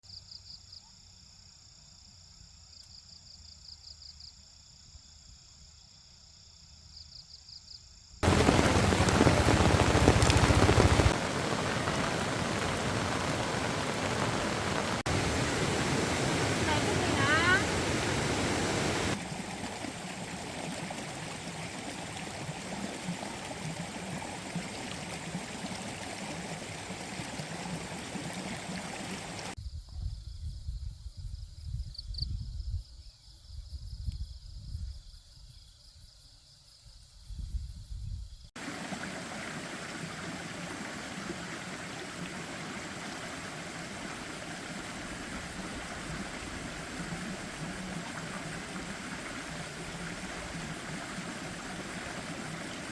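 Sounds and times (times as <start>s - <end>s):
low uneven rumbling: 8.2s - 19.2s
steady rushing noise: 8.2s - 19.2s.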